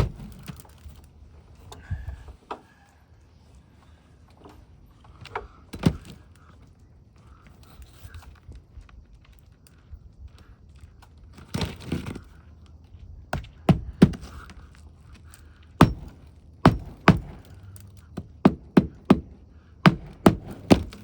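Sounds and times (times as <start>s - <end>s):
scraping rustle: 7.3s - 12.9s
hammer driving nails: 13.6s - 14.6s, 15.8s - 21.0s.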